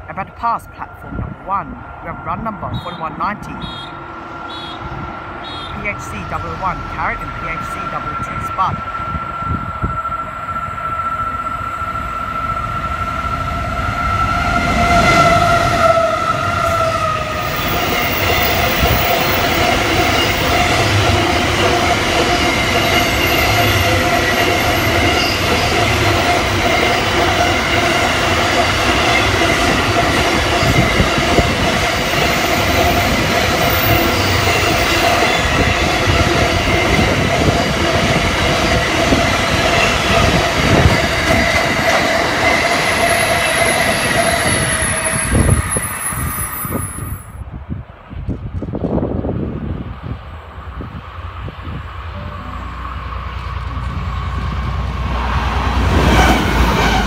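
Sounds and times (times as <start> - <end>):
locomotive high whine: 0.0 - 47.5, 49.8 - 57.0
train wheels rumbling on rail: 3.5 - 57.0
high wheel squeal: 22.5 - 25.9.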